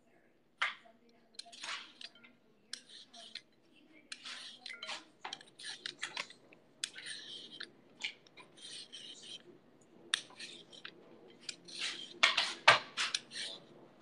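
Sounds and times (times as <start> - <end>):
utensils clinking: 0.6 - 14.0
knife cutting vegetables: 1.4 - 3.4, 4.1 - 9.4, 10.1 - 13.7.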